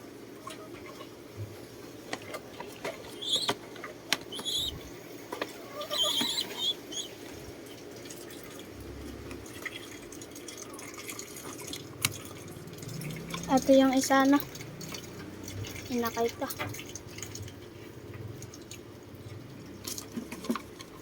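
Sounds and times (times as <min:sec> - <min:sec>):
high bird chirps: 0:03.2 - 0:03.5, 0:04.3 - 0:04.9, 0:05.8 - 0:07.2.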